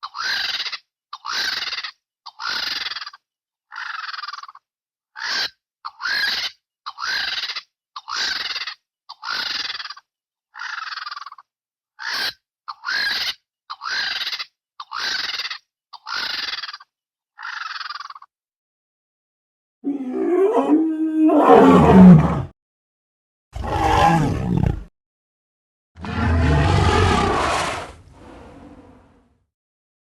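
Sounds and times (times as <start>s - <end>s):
harsh bird-like squawks: 0.0s - 4.6s, 5.2s - 11.4s, 12.0s - 18.3s.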